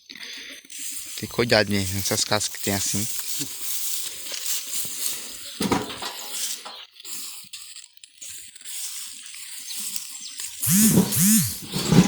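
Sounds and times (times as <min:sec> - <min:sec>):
firewood knocking and clinking: 0:05.6 - 0:06.3.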